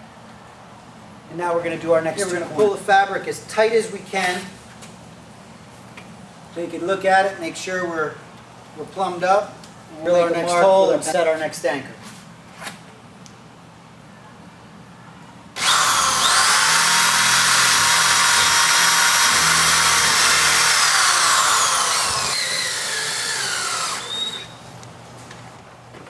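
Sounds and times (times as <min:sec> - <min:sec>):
electric power drill whining: 0:15.6 - 0:24.6.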